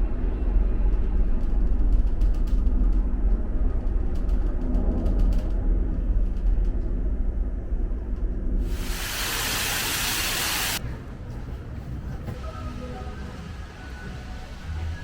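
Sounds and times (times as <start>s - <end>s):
loud hiss: 8.6s - 10.8s.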